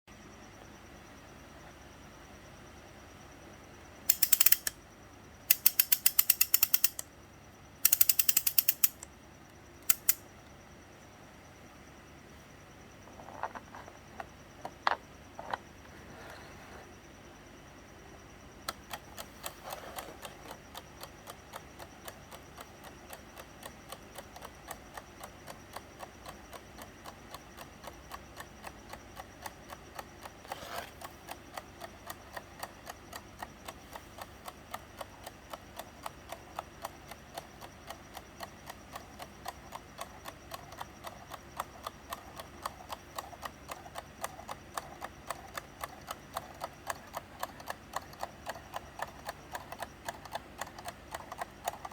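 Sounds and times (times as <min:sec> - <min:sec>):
clock ticking: 0:04.1 - 0:04.8, 0:05.5 - 0:07.1, 0:07.8 - 0:09.1, 0:09.9 - 0:10.2, 0:31.0 - 0:51.9.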